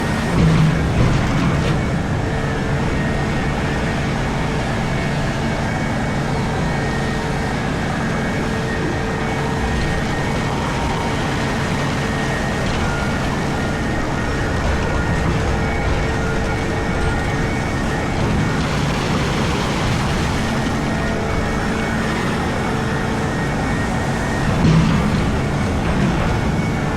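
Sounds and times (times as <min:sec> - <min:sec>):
excavator machinery drone: 0:00.0 - 0:26.9.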